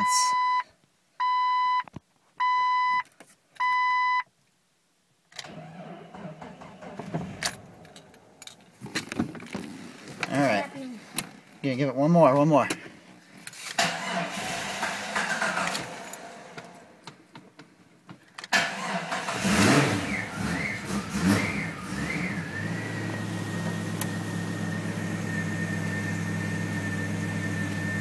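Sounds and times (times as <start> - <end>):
car engine starting and revving: 5.4 - 8.2, 13.8 - 17.0, 18.5 - 28.0.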